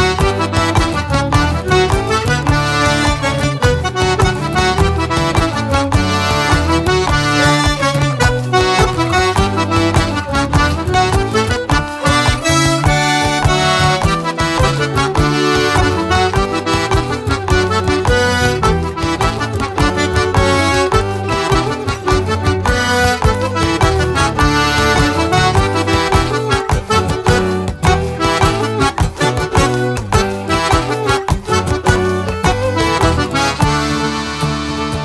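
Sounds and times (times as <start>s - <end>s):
accordion: 0.0s - 35.0s
fiddle: 0.0s - 35.0s
guitar: 0.0s - 35.0s.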